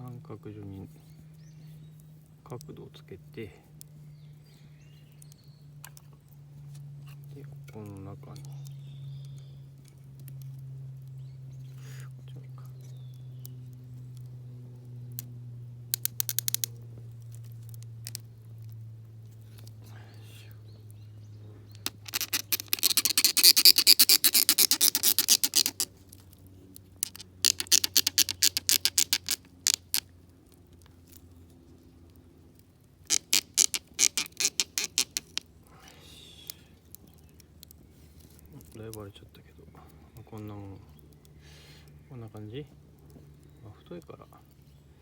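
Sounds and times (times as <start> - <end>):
blade scraping into wood: 21.8 - 25.9, 27.0 - 30.0, 33.1 - 35.4.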